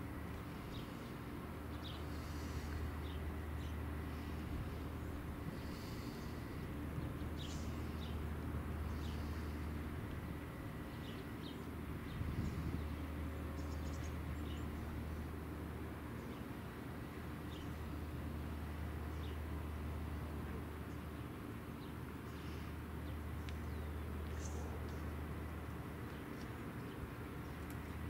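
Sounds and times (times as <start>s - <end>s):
steady low rumble: 0.0s - 21.2s.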